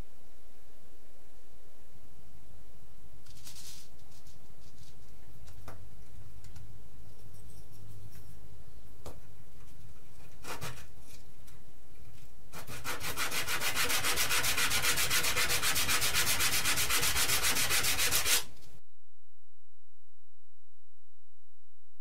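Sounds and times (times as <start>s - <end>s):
hand sanding strokes: 12.5s - 18.5s.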